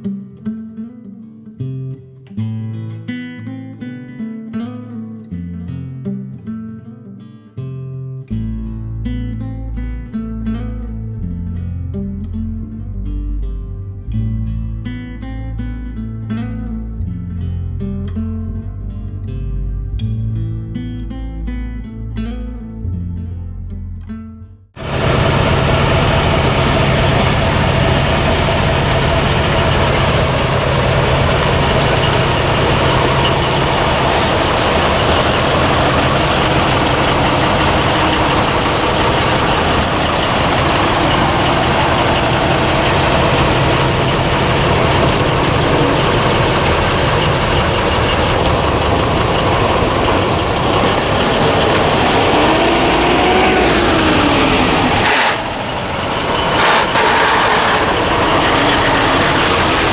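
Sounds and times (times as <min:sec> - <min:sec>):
truck engine running: 0:24.8 - 0:59.9.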